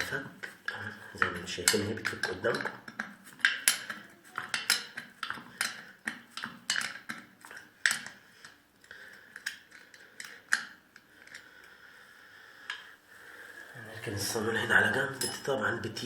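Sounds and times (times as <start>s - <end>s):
hand tools clicking on metal: 0.0s - 11.5s.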